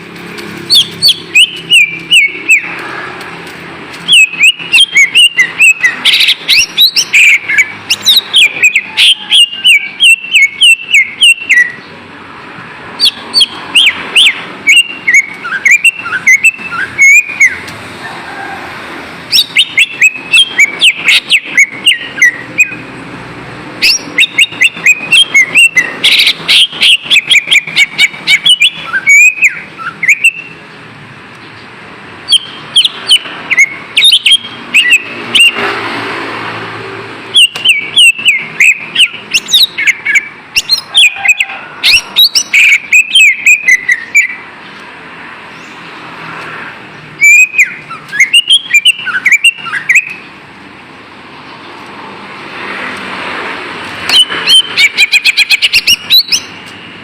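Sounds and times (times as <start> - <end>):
bird singing chirps and whistles: 0.7 - 2.8, 4.0 - 11.9, 13.0 - 17.6, 19.3 - 22.9, 23.8 - 30.6, 32.3 - 35.6, 37.4 - 44.4, 47.2 - 50.3, 54.1 - 56.6.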